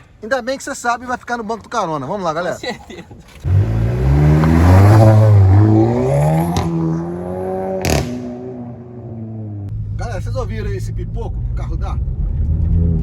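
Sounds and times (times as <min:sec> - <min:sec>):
sharp exhaust pops: 0:03.4 - 0:07.1, 0:07.7 - 0:08.6
car engine accelerating: 0:03.4 - 0:13.0.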